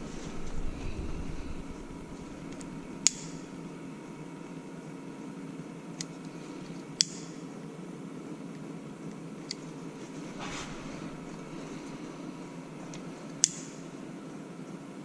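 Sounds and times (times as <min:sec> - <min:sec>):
machine hum: 0:00.0 - 0:15.0
sharp metallic clicks: 0:02.5 - 0:03.5, 0:07.0 - 0:07.4, 0:13.4 - 0:13.8.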